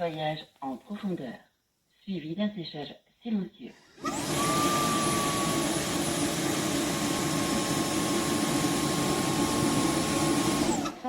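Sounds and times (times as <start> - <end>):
vacuum motor whirring: 3.7 - 11.0.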